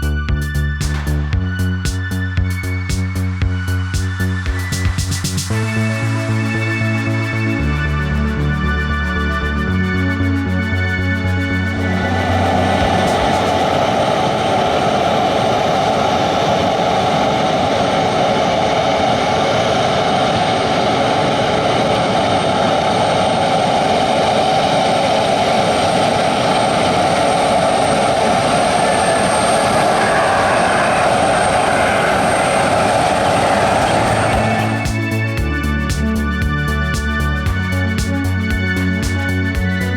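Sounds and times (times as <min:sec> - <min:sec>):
jet engines running: 0:00.0 - 0:39.9
faint high whine: 0:11.2 - 0:38.3.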